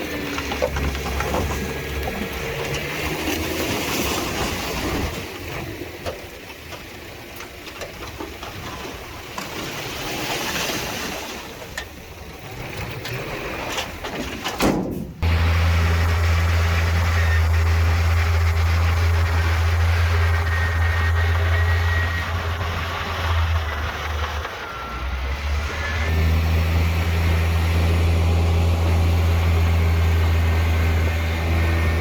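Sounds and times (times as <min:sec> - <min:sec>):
diesel machinery engine: 0:00.0 - 0:09.2, 0:15.1 - 0:32.0
low engine drone: 0:15.2 - 0:32.0.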